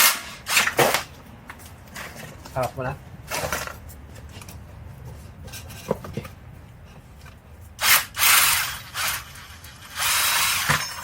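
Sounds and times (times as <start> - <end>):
power drill running in bursts: 7.8 - 11.0.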